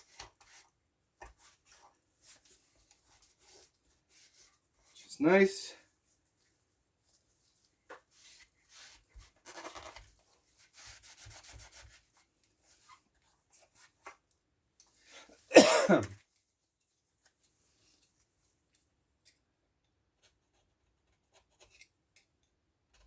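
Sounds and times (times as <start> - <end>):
person sneezing: 15.5 - 16.2.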